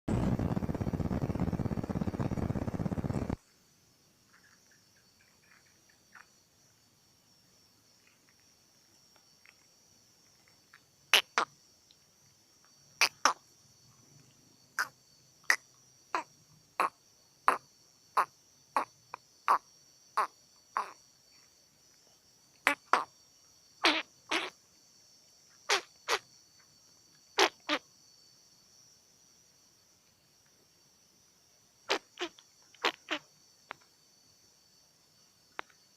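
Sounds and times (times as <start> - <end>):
animal buzzing trill: 0.1 - 3.4, 23.8 - 24.5, 31.9 - 33.3
high insect drone: 0.1 - 35.9.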